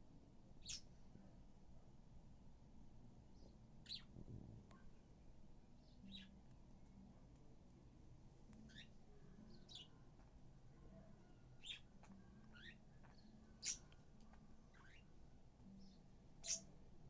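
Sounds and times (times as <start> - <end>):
budgerigar chirping: 0.6 - 0.8, 3.8 - 4.1, 8.7 - 8.9, 11.6 - 11.8, 13.6 - 13.9, 14.7 - 15.1, 16.4 - 16.7.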